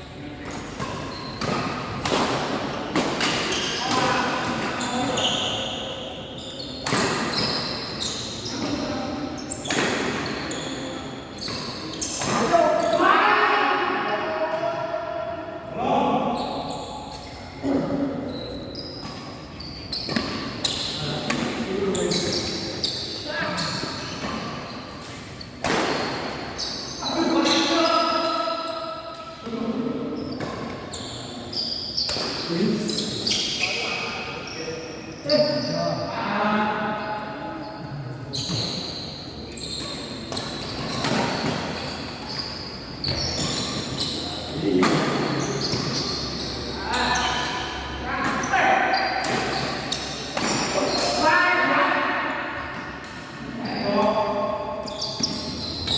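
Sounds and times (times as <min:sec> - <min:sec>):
court shoes squeaking: 0:00.1 - 0:13.0, 0:16.2 - 0:36.2, 0:36.9 - 0:55.9.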